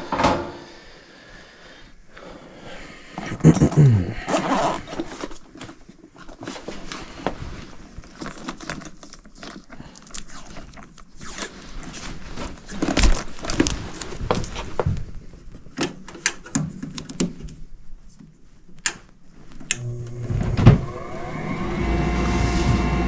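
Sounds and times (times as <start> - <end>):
footsteps: 22.0 - 23.0.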